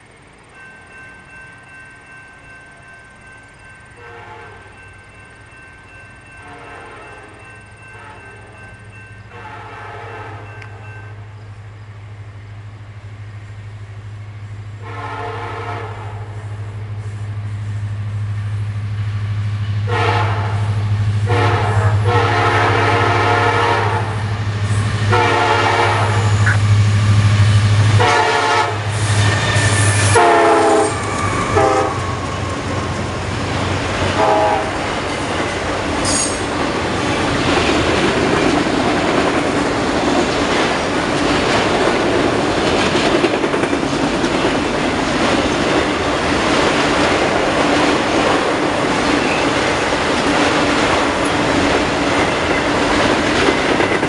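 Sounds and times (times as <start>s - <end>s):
train engine rumble: 0.0s - 54.0s
train air horn blasts: 4.0s - 4.8s, 6.4s - 7.3s, 7.9s - 8.6s, 9.3s - 10.8s, 14.8s - 17.2s, 19.8s - 32.2s, 34.1s - 34.8s
train wheels rattling: 24.1s - 54.0s.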